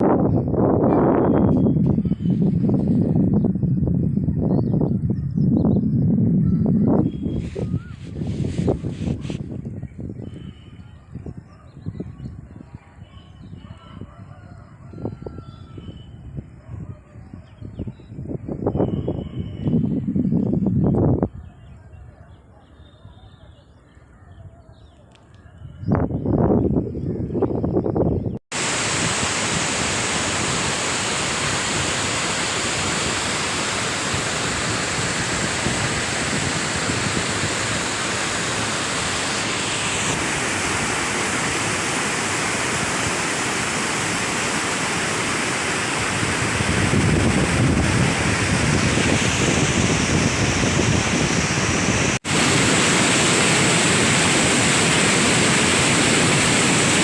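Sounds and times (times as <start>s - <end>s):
river rushing in flood: 28.5s - 57.0s.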